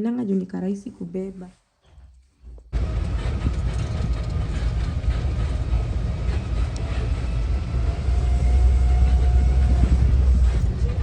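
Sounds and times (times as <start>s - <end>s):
moving vehicle rumble: 2.7s - 11.0s
small rattles and clicks: 3.0s - 7.1s.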